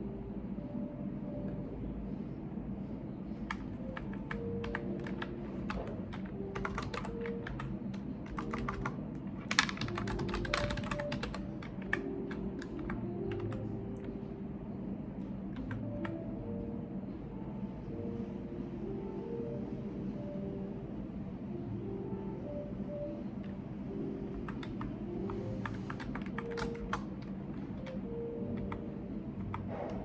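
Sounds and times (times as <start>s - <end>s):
low room hum: 0.0s - 30.0s
typing on computer keyboard: 3.5s - 14.1s, 24.3s - 28.0s.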